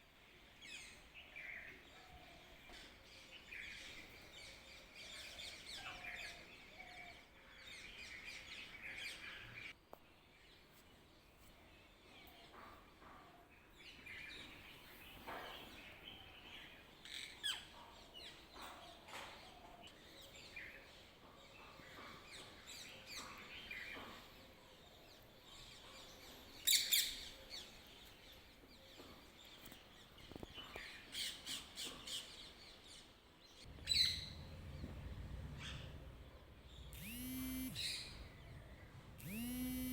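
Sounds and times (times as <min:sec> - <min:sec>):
birds chirping: 0:33.6 - 0:39.9.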